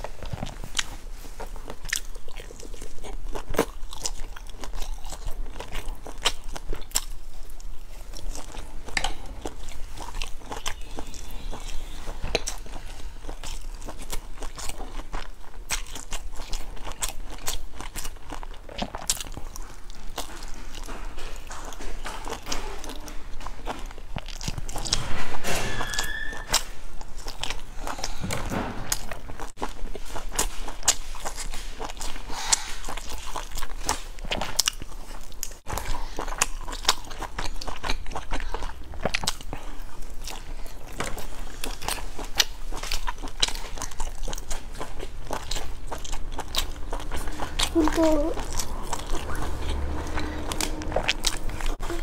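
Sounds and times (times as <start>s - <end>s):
crunchy chewing: 0.0s - 52.0s
short high squeak: 25.5s - 26.6s.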